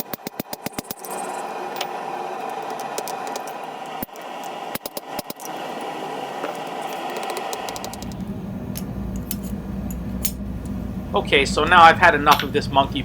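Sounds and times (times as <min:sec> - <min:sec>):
hammer striking steel on an anvil: 0:12.1 - 0:12.8.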